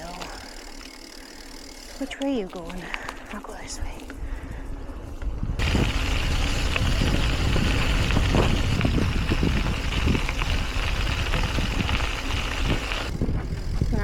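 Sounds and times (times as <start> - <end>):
bicycle tyre road noise: 0.0 - 14.0
wind buffeting microphone: 4.2 - 14.0.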